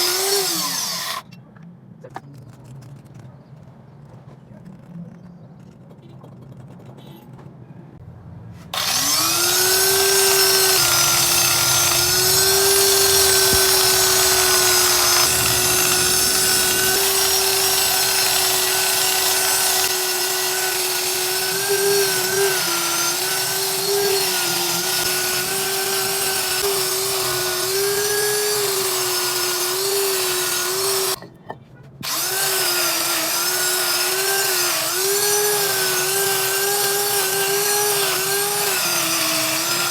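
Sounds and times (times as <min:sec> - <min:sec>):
power tool whining: 0:00.0 - 0:01.2, 0:08.7 - 0:31.2, 0:32.0 - 0:39.9.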